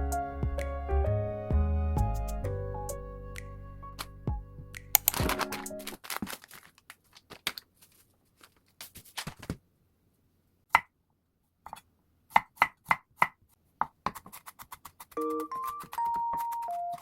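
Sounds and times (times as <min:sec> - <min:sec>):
food handling rustling and clicks: 0:05.0 - 0:09.6
knife chopping on cutting board: 0:11.7 - 0:16.6.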